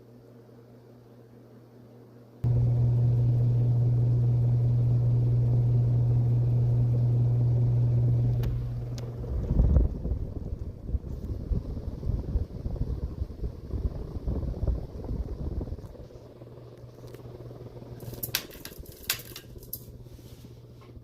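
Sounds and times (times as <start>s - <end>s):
ceiling fan motor humming: 0.0s - 21.0s
air gusts buffeting microphone: 8.6s - 16.6s.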